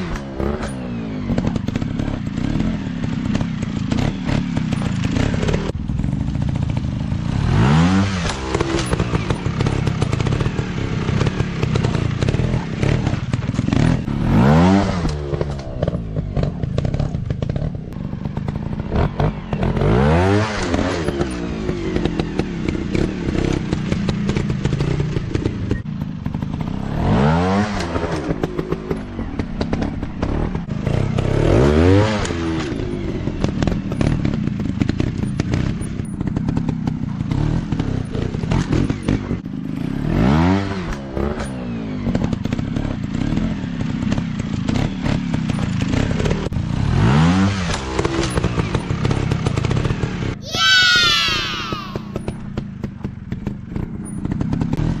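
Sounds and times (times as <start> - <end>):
dirt bike engine revving: 0.0 - 28.9, 50.4 - 52.4.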